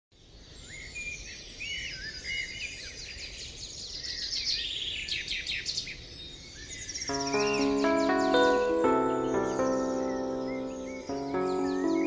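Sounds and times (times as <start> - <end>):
birds chirping: 7.1 - 12.0.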